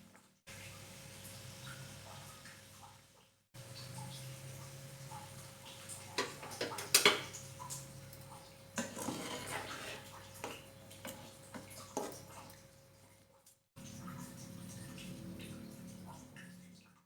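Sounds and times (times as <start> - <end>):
kitchen utensils and dishes clicking: 6.1 - 7.4, 8.8 - 12.3.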